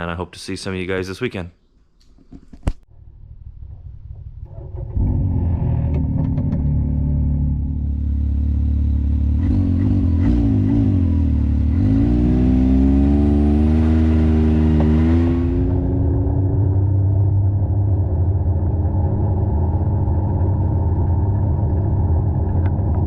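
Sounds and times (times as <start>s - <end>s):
utility vehicle engine running: 5.8s - 23.0s.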